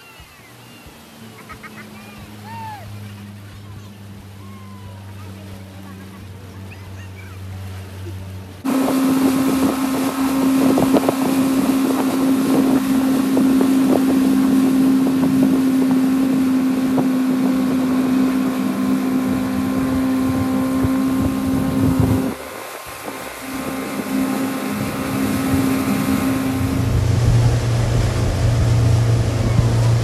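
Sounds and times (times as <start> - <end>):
motorboat engine running: 0.0 - 30.0
wind noise on microphone: 8.6 - 30.0.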